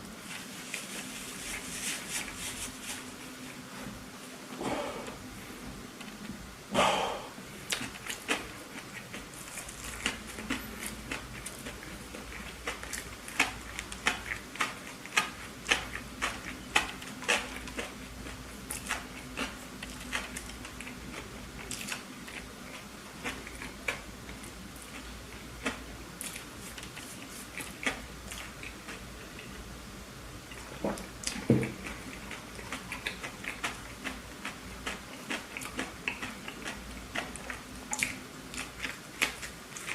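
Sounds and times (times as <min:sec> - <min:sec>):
chewing with wet mouth clicks: 0:07.7 - 0:29.6, 0:30.5 - 0:39.9.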